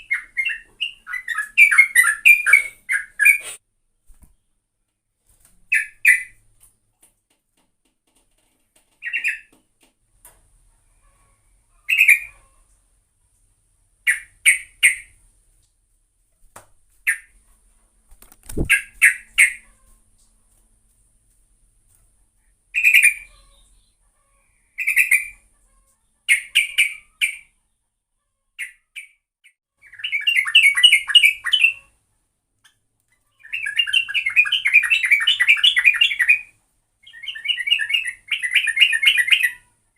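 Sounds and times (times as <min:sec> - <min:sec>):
bulbul calling: 0:00.0 - 0:03.5, 0:33.4 - 0:39.6.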